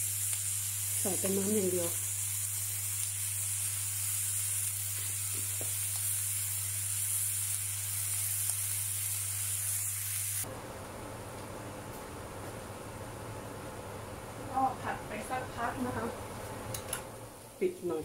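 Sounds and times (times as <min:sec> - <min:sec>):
chili paste sizzling in oil: 0:00.0 - 0:11.2.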